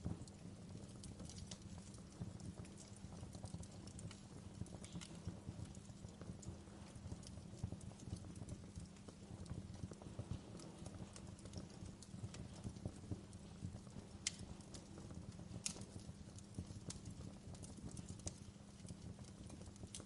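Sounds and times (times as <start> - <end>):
fire crackling and snapping: 0.0 - 20.0
low steady fire rumble: 0.0 - 20.0.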